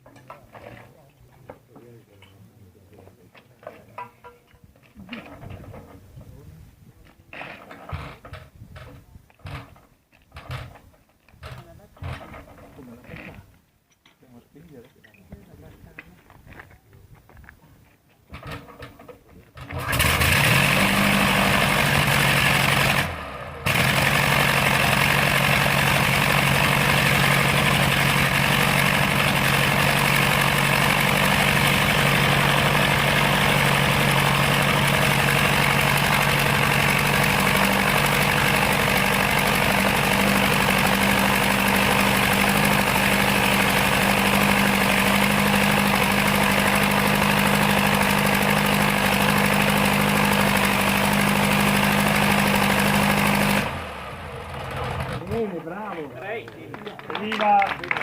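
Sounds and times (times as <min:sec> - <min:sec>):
aircraft engine running: 0:19.8 - 0:54.7.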